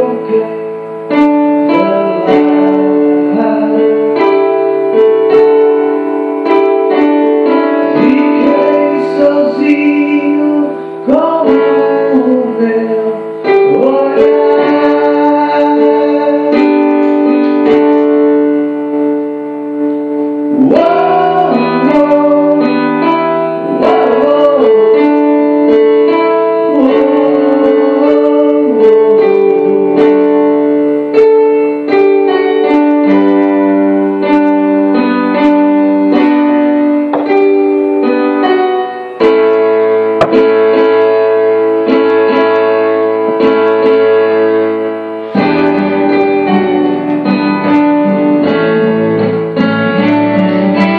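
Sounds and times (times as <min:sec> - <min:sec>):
person singing: 0:00.0 - 0:05.7, 0:06.8 - 0:18.0, 0:20.5 - 0:30.5.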